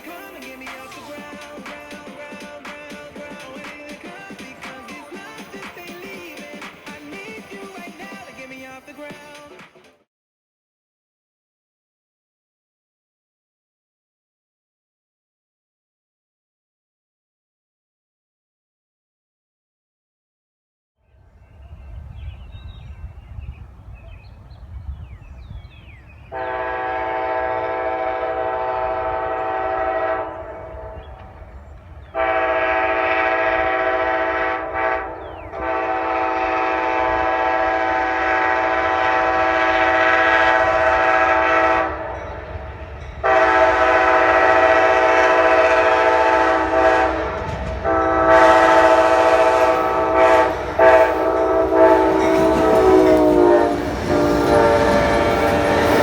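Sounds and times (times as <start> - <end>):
low rumble of train: 21.0 - 56.0
locomotive air horn blasts: 26.3 - 31.1, 32.2 - 42.5, 43.2 - 56.0.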